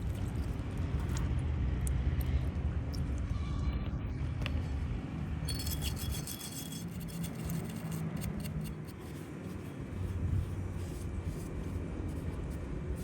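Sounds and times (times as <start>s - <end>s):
light metal clinks: 5.5s - 7.9s
metal parts rubbing and scraping: 5.5s - 9.7s.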